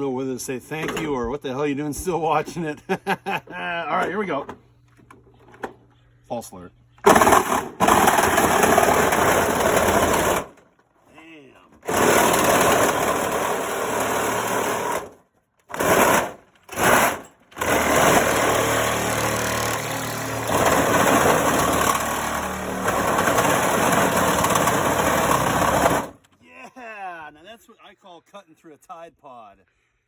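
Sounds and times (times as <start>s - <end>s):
power saw cutting metal and plastic: 7.0s - 10.7s, 11.7s - 26.2s.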